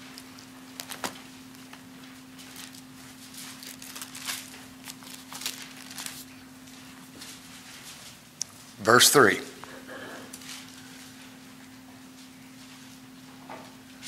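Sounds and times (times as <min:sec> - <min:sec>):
steady low hum: 0:00.0 - 0:14.0
book pages turning: 0:00.7 - 0:06.4.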